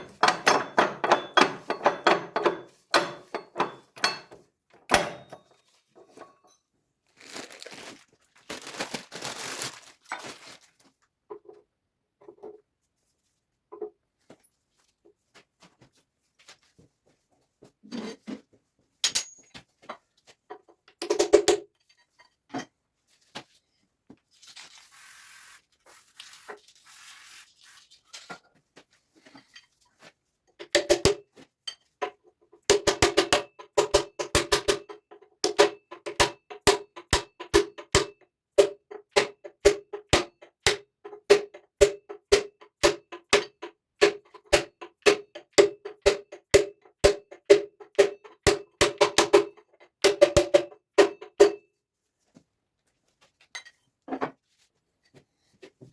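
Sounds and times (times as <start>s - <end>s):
hammer tapping on metal: 0.0s - 5.5s.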